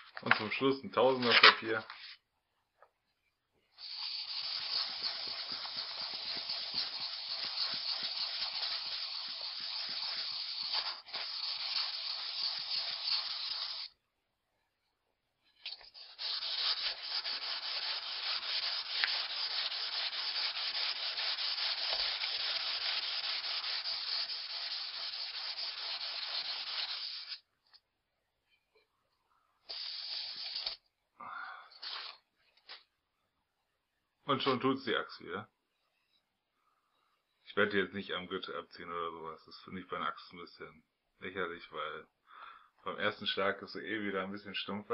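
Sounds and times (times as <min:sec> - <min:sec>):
axe blade rubbing on sandpaper: 0:03.8 - 0:13.9, 0:15.7 - 0:27.4, 0:29.7 - 0:30.8, 0:31.8 - 0:32.2.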